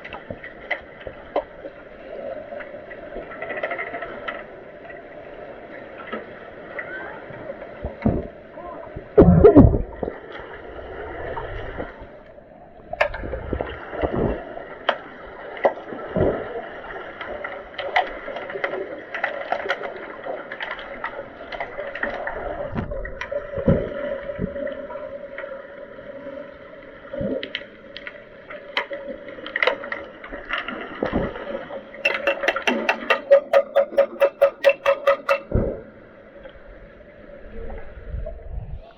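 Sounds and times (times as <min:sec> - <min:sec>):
pool water sloshing and gurgling: 0:00.0 - 0:38.9
sharp clicks and knocks: 0:32.0 - 0:35.8.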